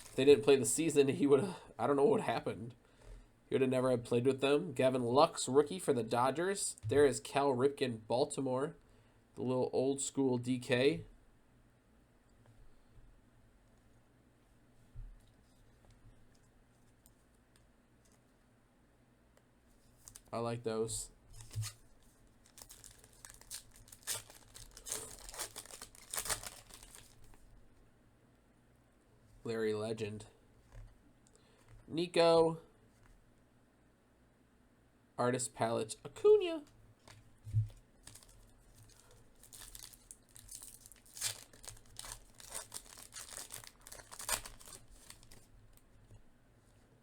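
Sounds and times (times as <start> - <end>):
card wrappers crinkling and tearing: 0.0 - 0.4, 20.0 - 20.3, 21.4 - 27.4, 38.0 - 45.5.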